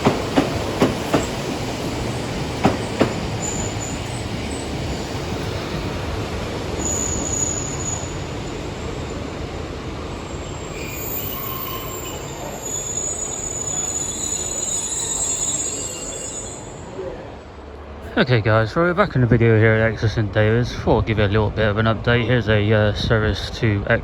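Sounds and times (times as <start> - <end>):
train rumbling past: 0.0 - 24.0
high-pitched wheel squeal: 10.7 - 16.9.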